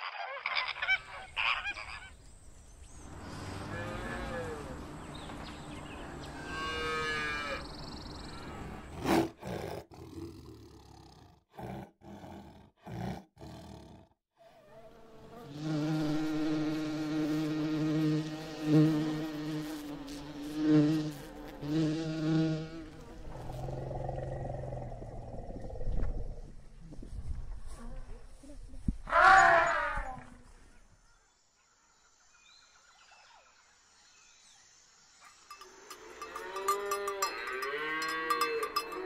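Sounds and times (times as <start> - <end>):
tiger growling: 8.5 - 14.2, 23.3 - 26.6.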